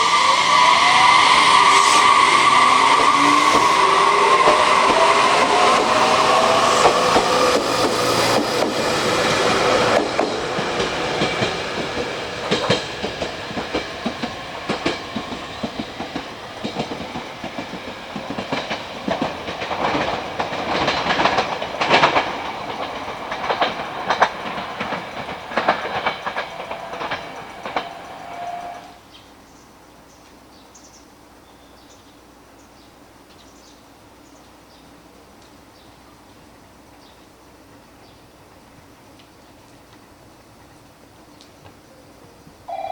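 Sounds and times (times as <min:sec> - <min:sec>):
train wheels clattering on rails: 0:00.0 - 0:29.1.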